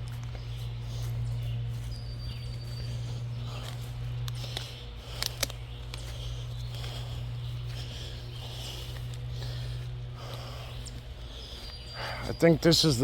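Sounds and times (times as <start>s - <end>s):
footsteps through forest brush: 0.0s - 13.0s
twigs snapping: 3.5s - 7.1s.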